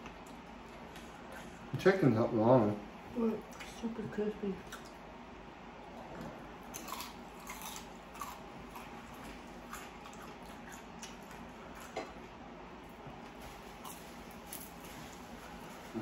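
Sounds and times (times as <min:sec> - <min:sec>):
chewing crispy fried chicken: 0:06.0 - 0:16.0.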